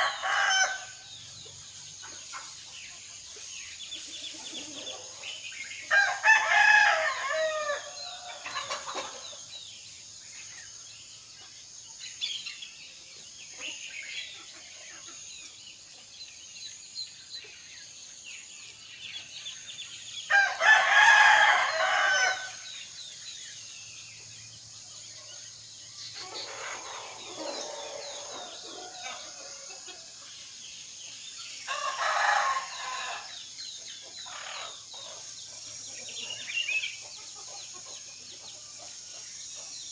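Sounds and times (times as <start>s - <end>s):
roosters crowing: 0.0s - 1.3s, 4.1s - 9.3s, 20.3s - 22.7s, 26.2s - 30.2s, 31.6s - 33.4s
small birds chirping: 0.0s - 39.9s.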